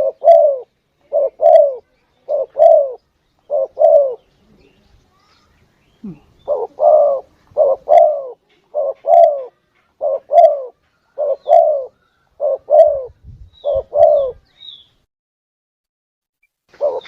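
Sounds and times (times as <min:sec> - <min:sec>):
dove cooing: 0:00.0 - 0:04.3, 0:06.0 - 0:14.4, 0:16.7 - 0:17.0.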